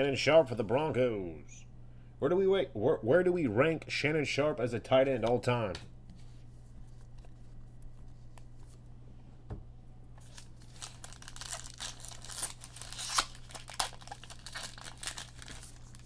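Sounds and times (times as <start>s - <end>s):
steady low hum: 0.0s - 16.0s
foil pack tearing and crinkling: 10.2s - 16.0s.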